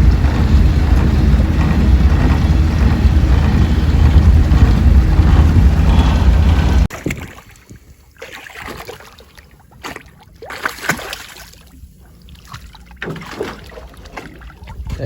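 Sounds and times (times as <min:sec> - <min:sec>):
knocks and clatter on boat hull: 0:00.0 - 0:06.9
low rumble: 0:00.0 - 0:06.9
water splashing: 0:00.0 - 0:15.0.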